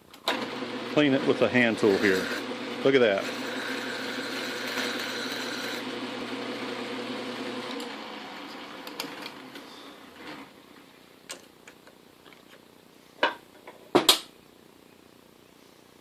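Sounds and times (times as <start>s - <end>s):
metal lathe running: 0.3s - 9.4s.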